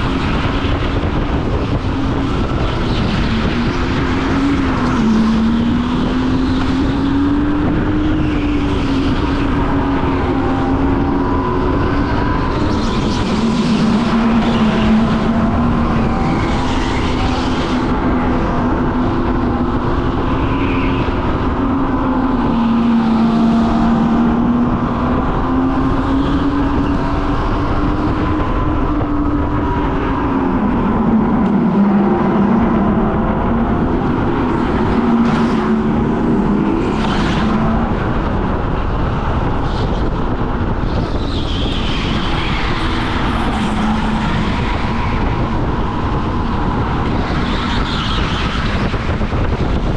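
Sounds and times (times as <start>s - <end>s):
go-kart engine revving: 0.0s - 49.9s.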